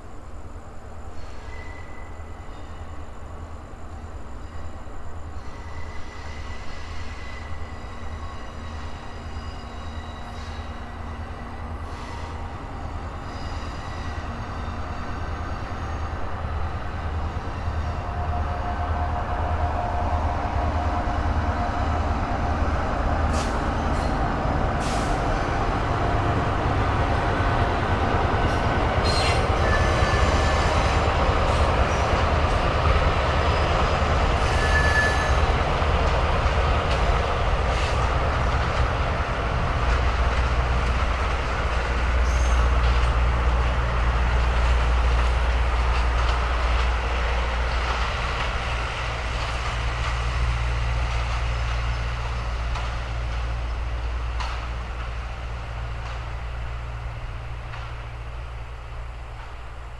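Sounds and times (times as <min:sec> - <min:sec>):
diesel locomotive passing: 0:00.0 - 0:59.9
high wheel squeals: 0:05.4 - 0:12.6, 0:13.2 - 0:16.2, 0:29.0 - 0:32.1, 0:33.5 - 0:35.6, 0:42.2 - 0:42.8.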